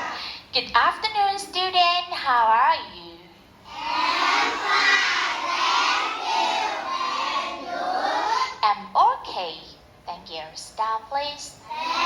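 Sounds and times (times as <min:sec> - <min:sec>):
children shouting together: 0:03.7 - 0:08.6, 0:11.7 - 0:12.0.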